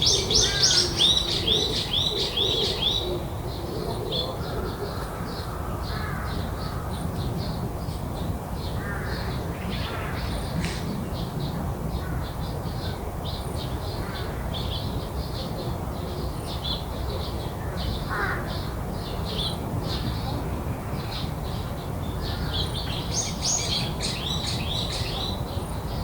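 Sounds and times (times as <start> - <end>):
harsh bird calls: 0.0 - 7.0.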